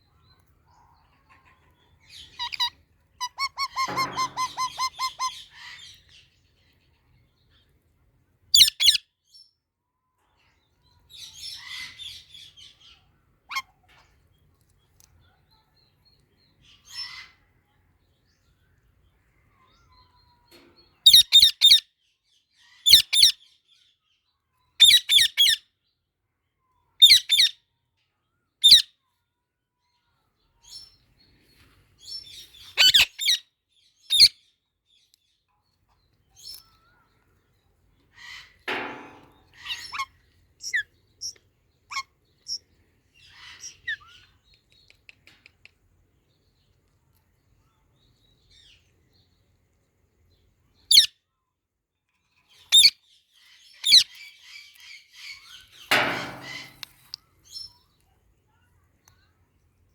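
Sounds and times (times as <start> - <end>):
parrot chirps and chatter: 0.1 - 7.7, 8.5 - 9.0, 10.4 - 18.0, 18.9 - 21.9, 22.6 - 23.6, 24.6 - 25.6, 26.7 - 27.6, 28.6 - 29.1, 32.0 - 34.5, 36.1 - 45.9, 50.7 - 51.3, 52.2 - 59.8
parrots calling harshly: 2.4 - 5.8.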